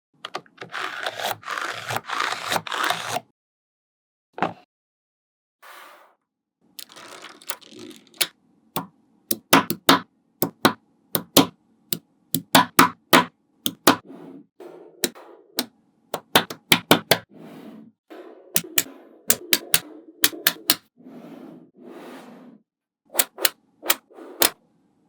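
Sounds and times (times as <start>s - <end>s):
balls rolling and rattling: 6.8s - 8.3s
magnetic balls snapping together: 6.8s - 11.5s, 12.4s - 14.0s, 16.2s - 17.2s, 18.6s - 20.8s, 23.1s - 24.6s.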